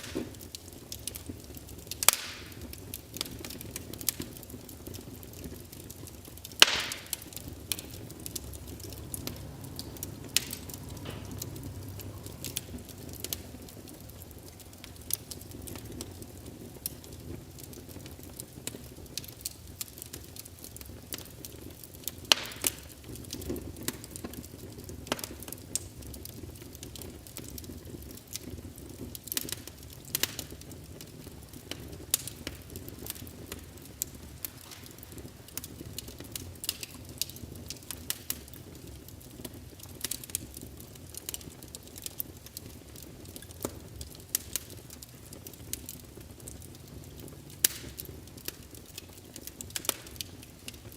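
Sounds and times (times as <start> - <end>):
rush of flame: 0.0 - 26.1, 26.9 - 38.8
fire popping and snapping: 0.0 - 50.9.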